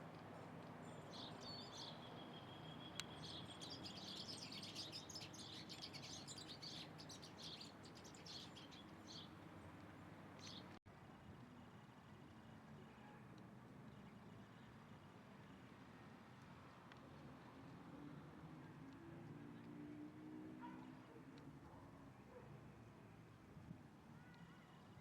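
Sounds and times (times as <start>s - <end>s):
small birds chirping: 0.6s - 9.4s.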